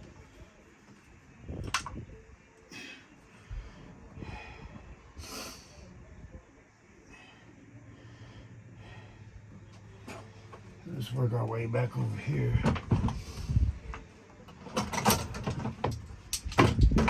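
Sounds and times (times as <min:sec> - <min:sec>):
man breathing noisily: 0:02.6 - 0:06.1, 0:06.9 - 0:09.7, 0:12.6 - 0:13.9.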